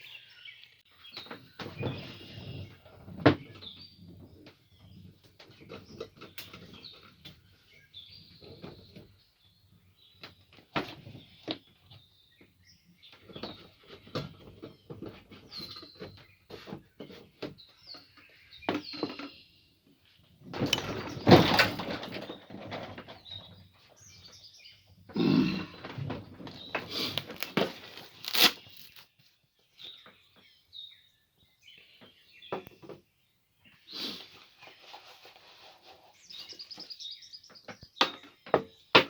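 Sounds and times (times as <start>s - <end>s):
songbirds chirping: 0.0s - 39.0s
rattling and rustling: 20.4s - 24.4s.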